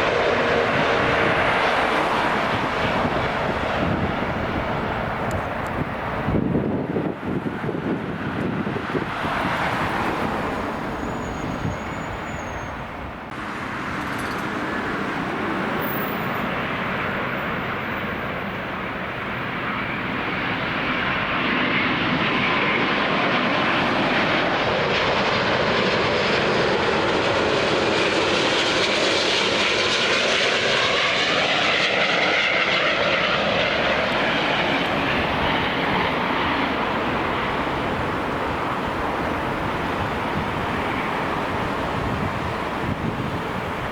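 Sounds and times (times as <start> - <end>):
jet engine roar: 0.0 - 43.9.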